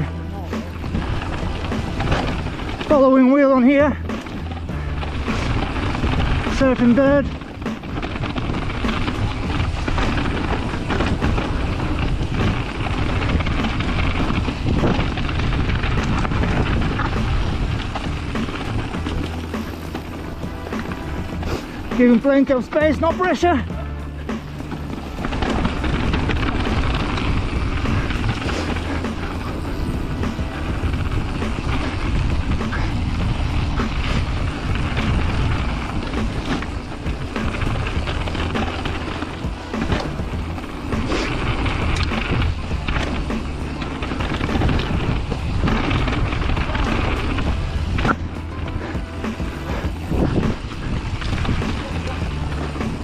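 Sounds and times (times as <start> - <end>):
bike knocking and rattling: 0.0 - 53.0
wind rushing over microphone: 0.0 - 53.0.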